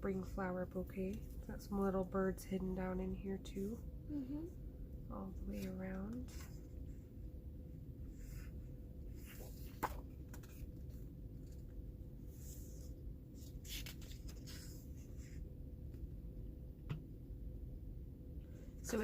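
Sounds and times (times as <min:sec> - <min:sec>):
paper pages rustling: 0:09.1 - 0:11.7, 0:12.4 - 0:14.9.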